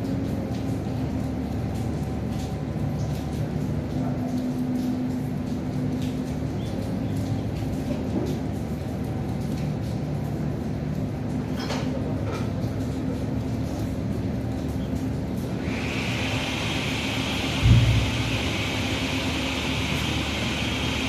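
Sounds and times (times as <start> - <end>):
faint drips: 0.0 - 15.6
light rain falling: 0.0 - 21.0
constant hum: 16.7 - 21.0.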